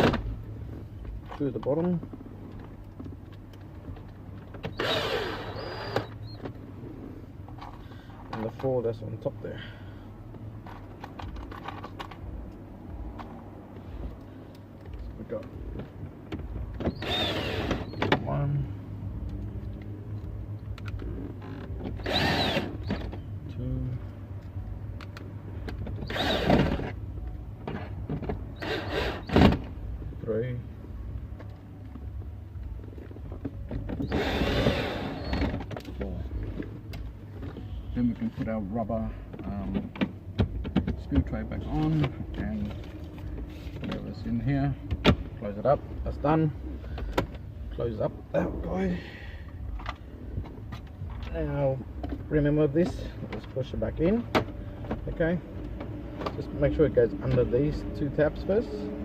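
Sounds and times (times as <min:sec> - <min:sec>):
power screwdriver whining: 0:04.7 - 0:06.2, 0:16.9 - 0:18.0, 0:22.0 - 0:23.0, 0:26.0 - 0:26.9, 0:28.6 - 0:29.5, 0:34.0 - 0:35.5.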